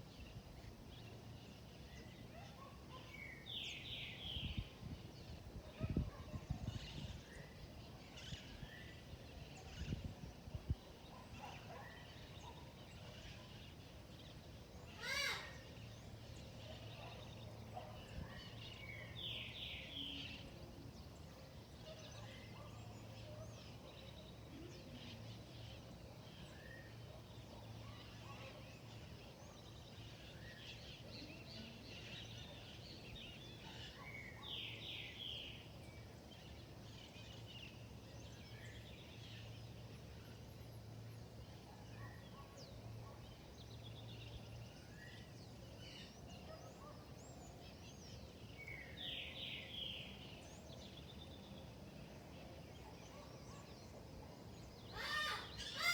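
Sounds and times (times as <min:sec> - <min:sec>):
birds chirping and calling: 0:54.8 - 0:55.9.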